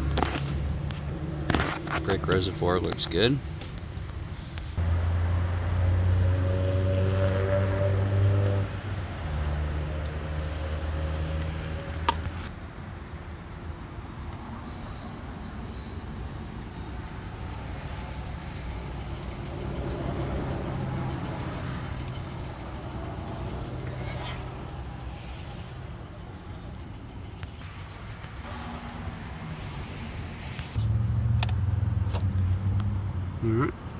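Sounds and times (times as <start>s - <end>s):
car engine humming: 0.0s - 27.7s, 28.4s - 33.9s.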